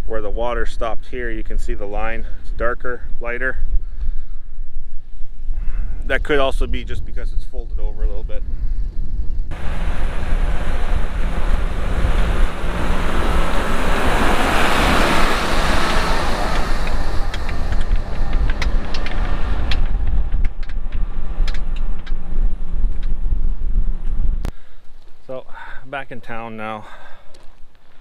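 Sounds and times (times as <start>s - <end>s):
vehicle engine rumbling: 1.0s - 28.0s
rushing noise: 9.5s - 24.6s
sharp clicks: 15.9s - 22.2s.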